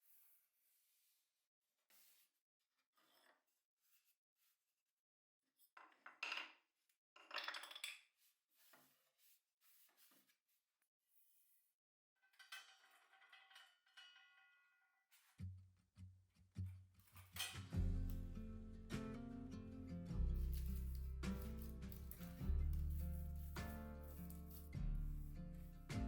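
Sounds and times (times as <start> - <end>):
music: 16.6 - 26.0
small objects clinking: 20.3 - 24.8.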